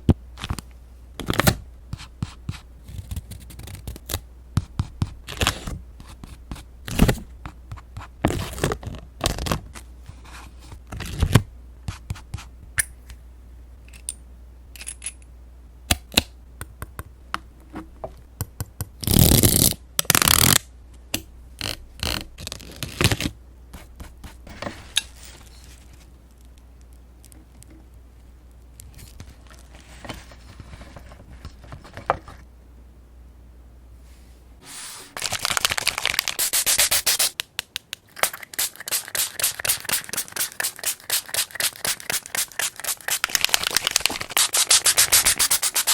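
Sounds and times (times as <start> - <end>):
faint low hum: 0.0 - 36.5
paper and stickers handled: 28.8 - 32.4, 34.7 - 37.4, 38.2 - 45.9
paper scraping rustles: 29.0 - 32.4, 38.9 - 45.9.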